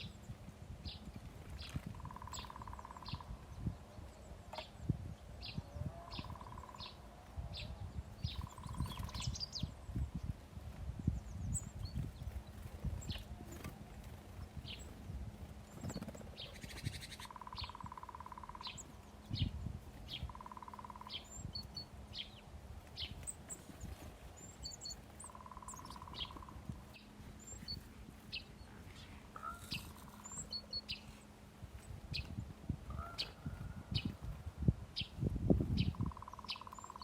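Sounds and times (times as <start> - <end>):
songbirds chirping: 0.0 - 37.0
buzzy trilled bird calls: 1.6 - 3.5, 5.5 - 7.0, 8.2 - 10.2, 15.7 - 22.4, 23.0 - 31.4, 35.7 - 37.0.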